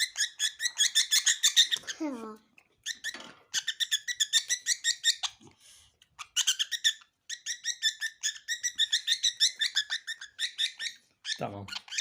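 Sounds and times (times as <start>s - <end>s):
budgerigar chirping: 0.0s - 2.0s, 2.8s - 5.4s, 6.2s - 12.0s.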